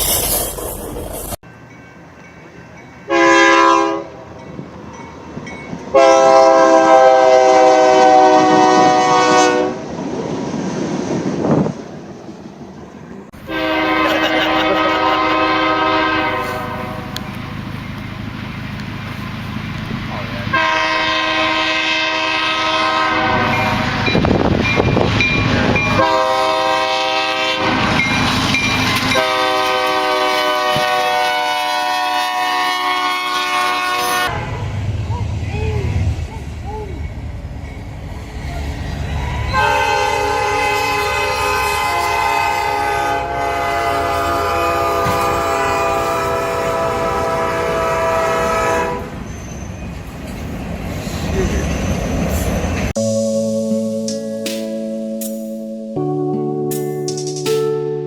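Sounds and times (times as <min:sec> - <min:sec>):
train passing rumble: 0:00.0 - 0:54.8
locomotive air horn blasts: 0:03.1 - 0:04.2, 0:05.9 - 0:09.9, 0:13.4 - 0:17.3, 0:20.5 - 0:24.2, 0:25.5 - 0:28.0, 0:28.9 - 0:34.7, 0:39.3 - 0:49.2.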